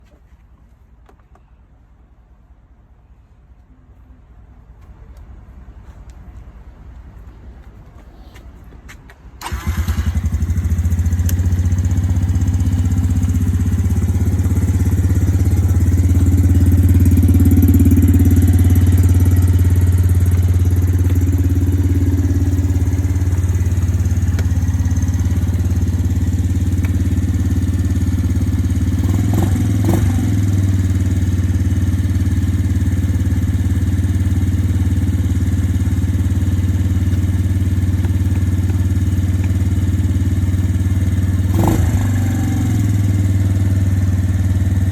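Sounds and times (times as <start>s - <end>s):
quad engine starting and idling: 9.4s - 44.9s.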